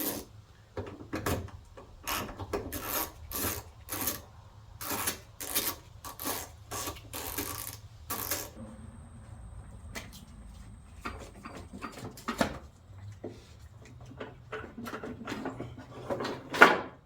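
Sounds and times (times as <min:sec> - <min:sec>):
ratchet wrench rasping: 0:04.8 - 0:08.6.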